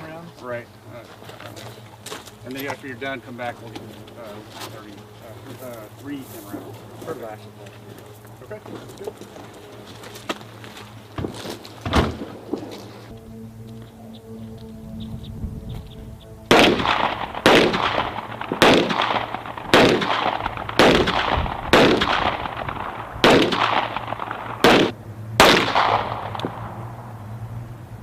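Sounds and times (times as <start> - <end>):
pistol shots with echo: 16.5 - 26.8.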